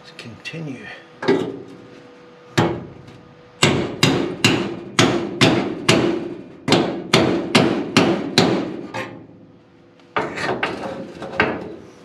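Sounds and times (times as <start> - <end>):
hammer striking metal: 3.6 - 9.0.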